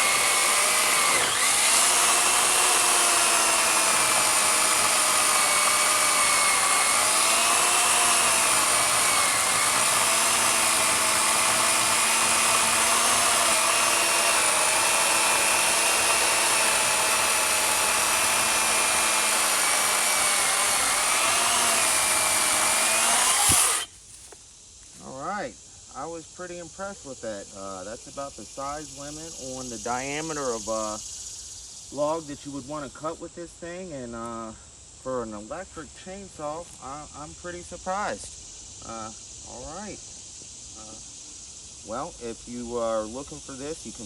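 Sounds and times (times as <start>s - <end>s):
electric chainsaw cutting log: 0.0s - 23.9s.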